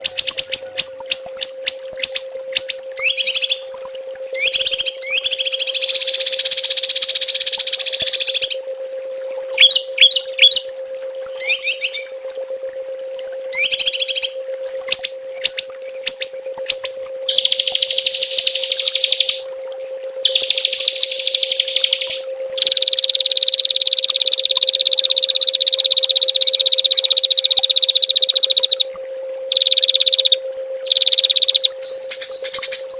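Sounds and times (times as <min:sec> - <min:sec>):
bird chirps: 0:00.0 - 0:03.7, 0:04.4 - 0:08.6, 0:09.6 - 0:10.6, 0:11.4 - 0:12.2, 0:13.5 - 0:19.4, 0:20.3 - 0:23.8, 0:29.5 - 0:32.9
songbirds trilling: 0:00.0 - 0:03.7, 0:04.4 - 0:08.6, 0:09.6 - 0:10.7, 0:11.4 - 0:12.2, 0:13.5 - 0:19.4, 0:20.3 - 0:23.2, 0:29.5 - 0:32.9
steady low hum: 0:00.0 - 0:32.9.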